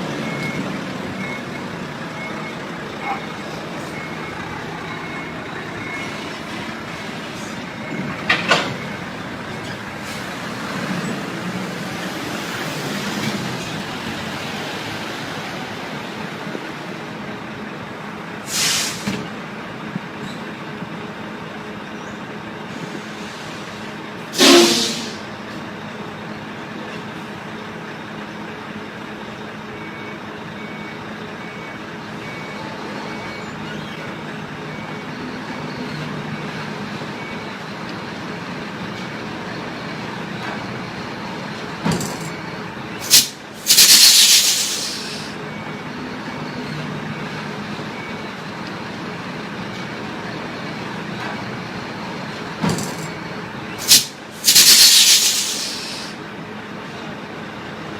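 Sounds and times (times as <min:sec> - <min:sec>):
diesel truck engine running: 0:00.0 - 0:57.9
air brake hiss: 0:18.5 - 0:19.2, 0:22.7 - 0:25.3, 0:43.0 - 0:45.4, 0:53.8 - 0:56.2.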